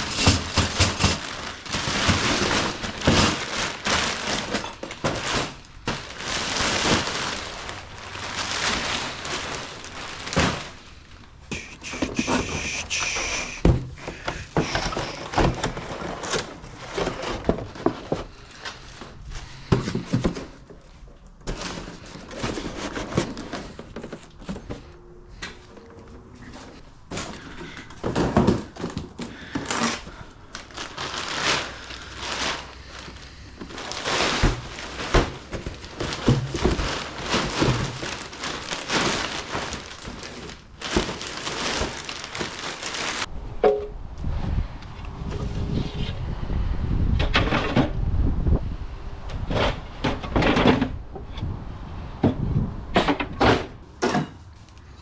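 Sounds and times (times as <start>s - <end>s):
boxes knocking and thudding: 0.0s - 25.0s, 26.4s - 43.9s
cardboard and plastic crinkling: 0.0s - 43.3s.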